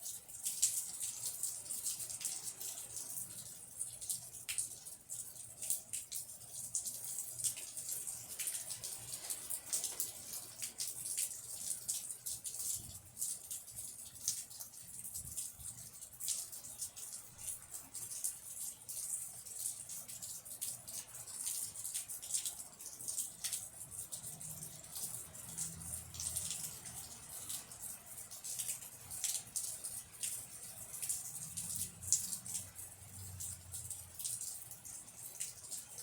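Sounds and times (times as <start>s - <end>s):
raindrops pattering and dripping: 0.0s - 36.0s
steady rain hiss: 0.0s - 36.0s.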